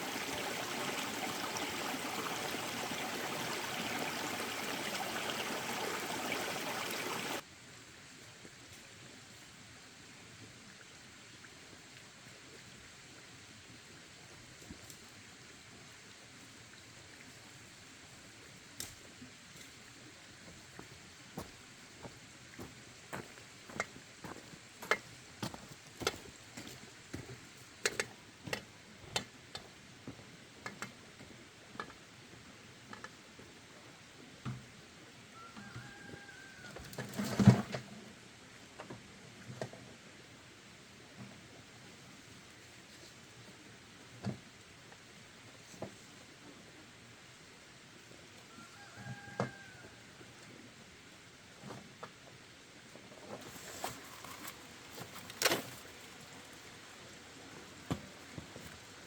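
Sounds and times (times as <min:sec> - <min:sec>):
rushing water: 0:00.0 - 0:07.4.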